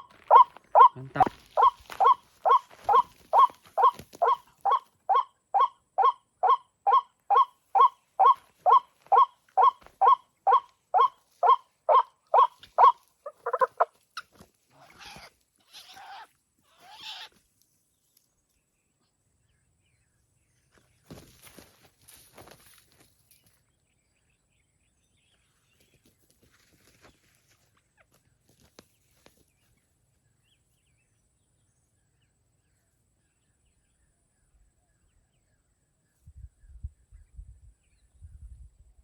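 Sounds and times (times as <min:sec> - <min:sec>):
bird calling nasal notes: 0:00.0 - 0:15.0.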